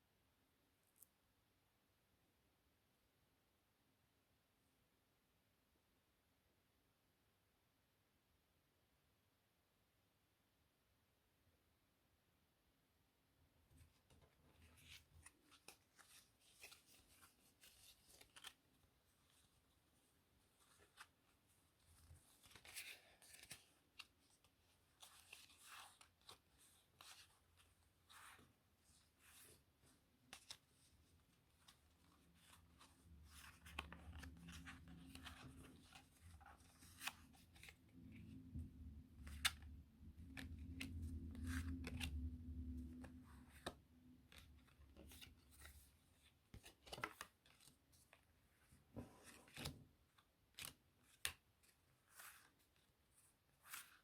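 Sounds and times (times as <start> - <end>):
playing cards clicking and rustling: 14.1 - 18.7, 22.0 - 28.4, 31.6 - 37.8, 39.0 - 45.9.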